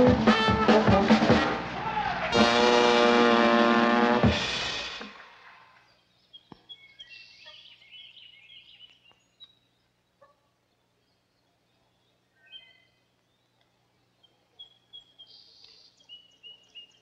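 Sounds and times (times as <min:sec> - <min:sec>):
faint bird chirps: 0:05.8 - 0:17.0.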